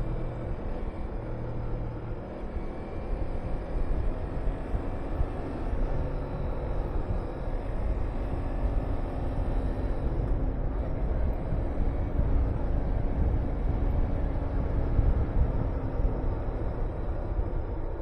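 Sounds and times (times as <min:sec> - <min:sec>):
wind noise on microphone: 0:03.7 - 0:18.0.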